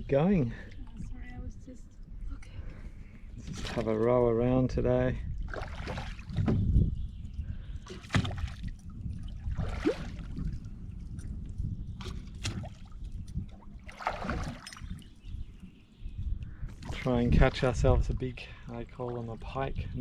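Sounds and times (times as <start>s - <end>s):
oars splashing in water: 3.4s - 4.1s, 5.4s - 6.7s, 7.8s - 15.3s.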